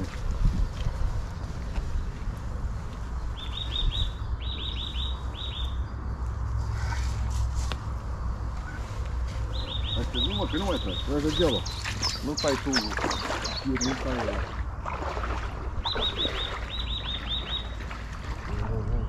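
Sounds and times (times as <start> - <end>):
wind rumble on microphone: 0.0 - 10.1, 11.4 - 19.0
bird calling: 3.3 - 6.0, 8.6 - 14.6, 15.8 - 19.0.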